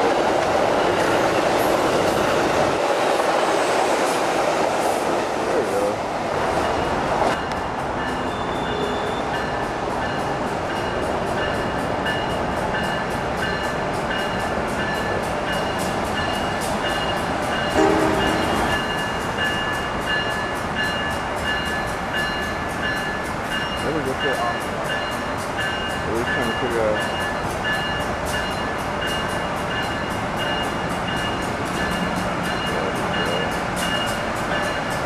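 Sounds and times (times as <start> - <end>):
train rumble with clicking: 0.0 - 35.0
low train horn: 17.7 - 18.9.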